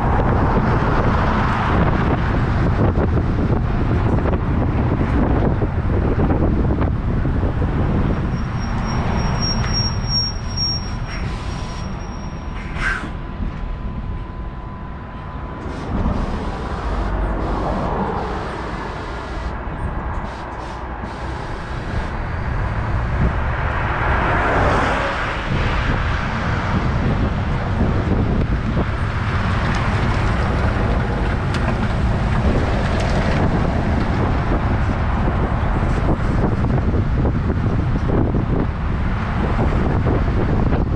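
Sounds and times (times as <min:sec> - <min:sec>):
road and wind noise: 0:00.0 - 0:40.9
truck engine running: 0:09.9 - 0:23.7, 0:26.2 - 0:40.8.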